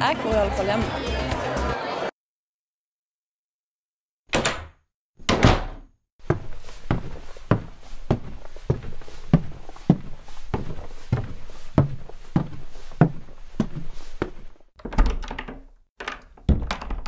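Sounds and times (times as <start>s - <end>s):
footsteps walking: 6.2s - 14.7s.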